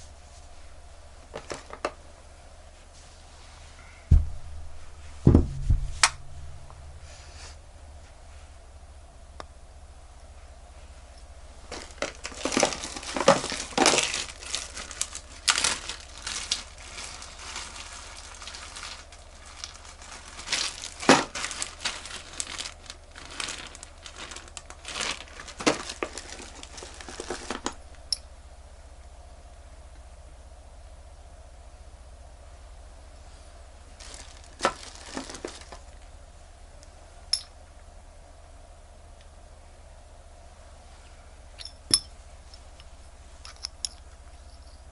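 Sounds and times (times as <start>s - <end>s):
crinkling and rustling: 0.0s - 2.0s, 10.8s - 28.1s, 33.9s - 36.1s.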